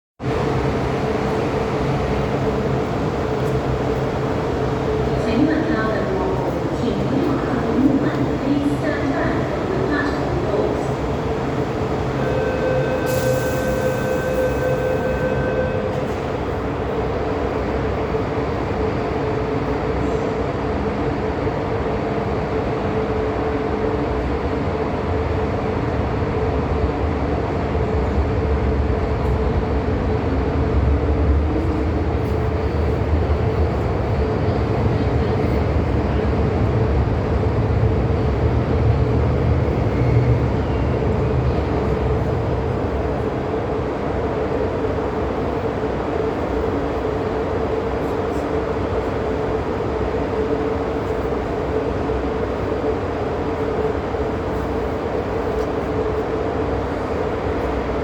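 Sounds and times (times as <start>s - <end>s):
constant train hum: 0.2s - 58.0s
train wheels rumbling on rail: 0.2s - 58.0s.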